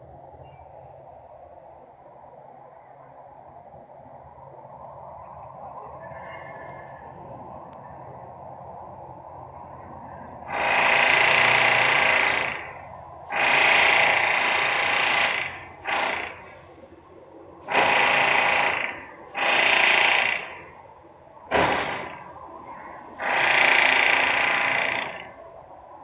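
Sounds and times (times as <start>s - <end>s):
low background hum: 0.0s - 26.0s
power tool bursts: 10.5s - 16.6s, 17.7s - 20.7s, 21.5s - 22.3s, 23.2s - 25.3s.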